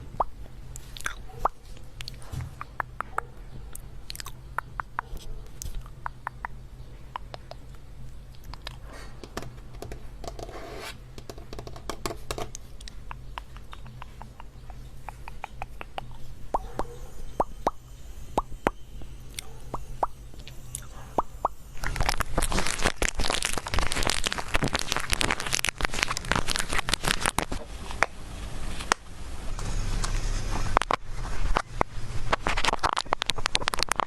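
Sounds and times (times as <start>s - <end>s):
small taps and pops: 11.2s - 16.2s
dense crackling and crunching: 20.0s - 29.1s, 30.0s - 34.0s.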